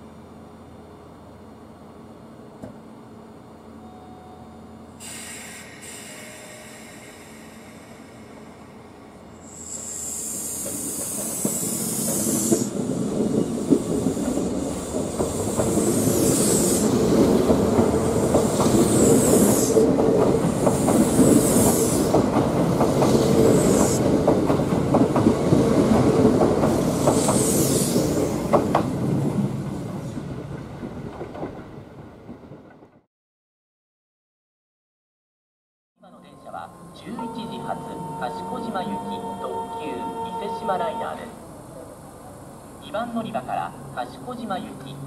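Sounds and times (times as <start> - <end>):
train rumble and wheel clatter: 0.0 - 33.1, 36.1 - 45.0
high-pitched hissing squeals: 5.0 - 17.2, 18.2 - 19.8, 26.9 - 28.5.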